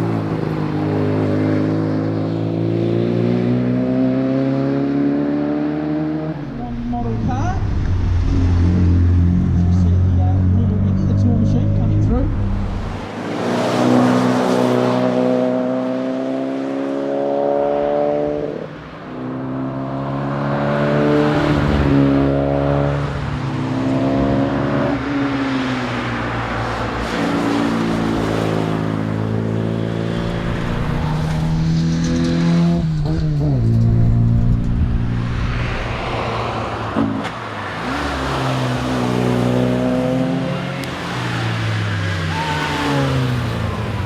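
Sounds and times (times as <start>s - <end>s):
car engine accelerating: 1.7s - 18.5s, 27.7s - 41.7s.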